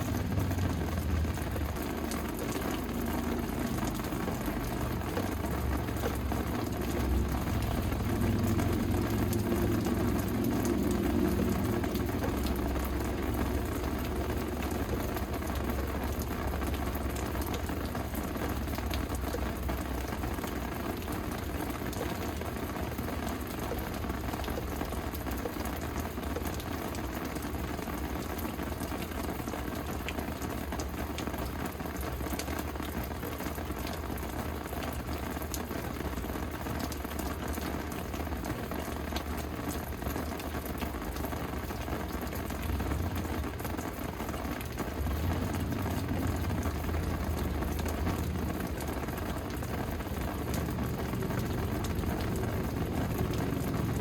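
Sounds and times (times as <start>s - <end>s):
rain drops ticking: 0.0s - 54.0s
low rumble: 6.8s - 15.2s.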